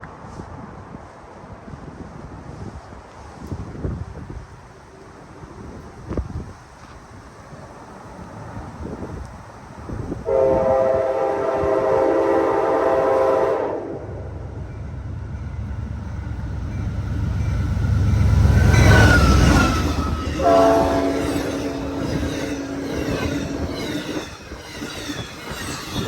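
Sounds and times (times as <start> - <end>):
diesel train rumbling past: 0.0 - 26.0
locomotive horn chord: 10.2 - 14.1, 18.6 - 23.8.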